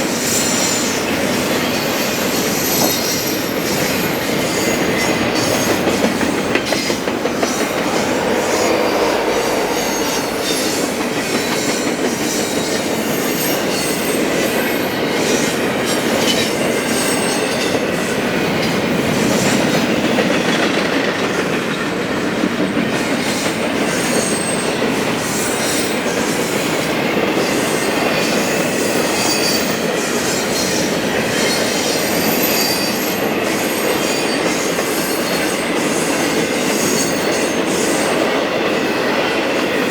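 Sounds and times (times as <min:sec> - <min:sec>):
train cars rumbling past: 0:00.0 - 0:25.3
high-pitched wheel squeals: 0:07.4 - 0:14.2.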